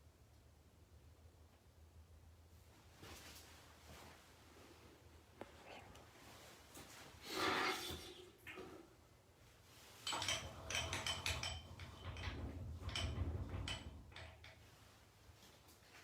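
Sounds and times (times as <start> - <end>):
clinks and scrapes of steel parts: 7.3 - 8.4, 10.0 - 14.6
metal tools clattering on workbench: 10.0 - 14.6.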